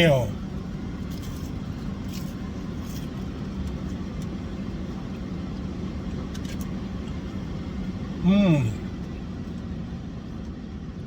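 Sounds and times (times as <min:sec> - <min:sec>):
car engine idling: 0:03.6 - 0:11.0.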